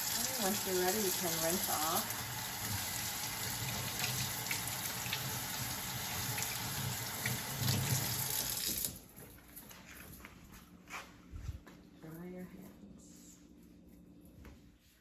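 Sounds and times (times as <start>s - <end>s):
water running from tap: 0.0s - 9.0s.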